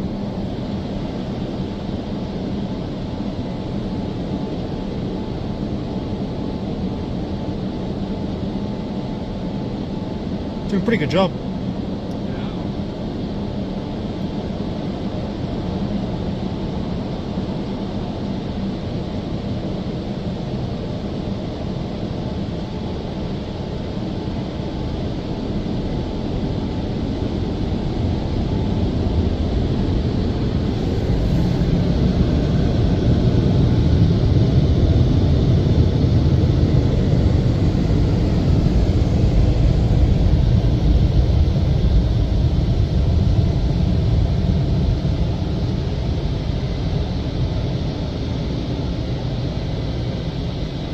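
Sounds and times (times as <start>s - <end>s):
car wash blowers blasting air: 9.8s - 20.4s, 21.7s - 50.9s.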